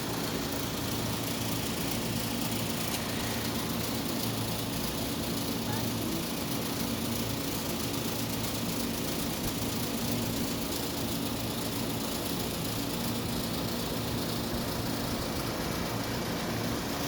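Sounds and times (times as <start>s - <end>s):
motor humming steadily: 0.0s - 17.0s.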